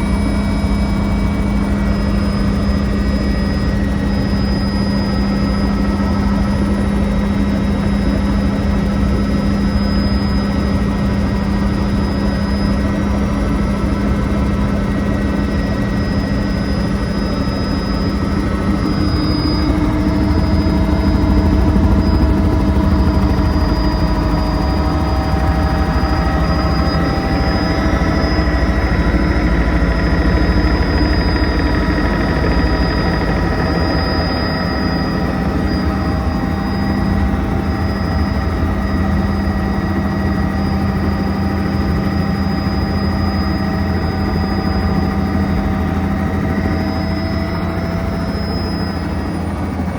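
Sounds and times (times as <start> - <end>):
helicopter turbine and rotor: 0.0 - 49.9.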